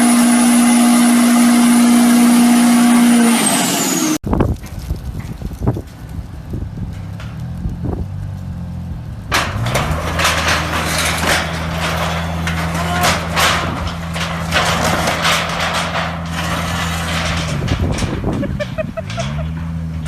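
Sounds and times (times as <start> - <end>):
truck engine revving: 0.0 - 4.2, 6.0 - 20.0
crackling rush of noise: 4.2 - 18.4.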